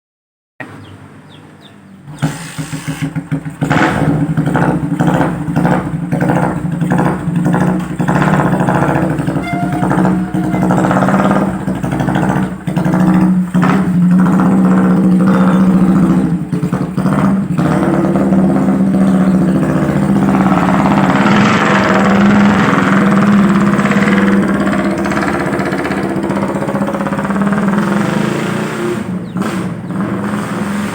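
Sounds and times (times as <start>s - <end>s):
motorcycle engine revving: 1.3s - 30.9s.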